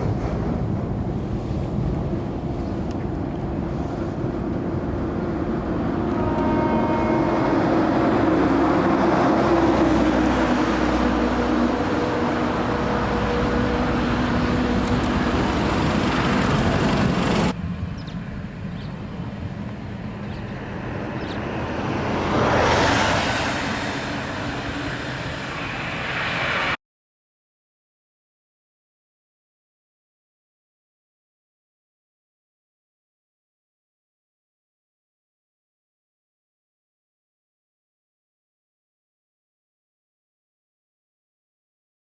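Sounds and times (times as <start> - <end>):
diesel locomotive engine: 0.0 - 26.8
wagons rolling on rails: 13.8 - 17.6.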